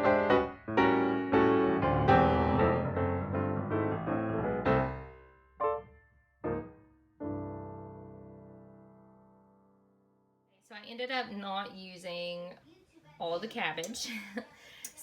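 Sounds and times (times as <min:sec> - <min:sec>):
piano music: 0:00.0 - 0:10.2.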